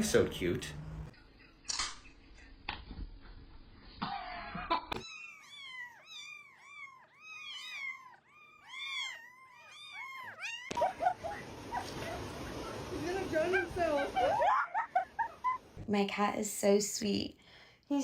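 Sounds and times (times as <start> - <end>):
cat mewing: 5.0 - 11.1.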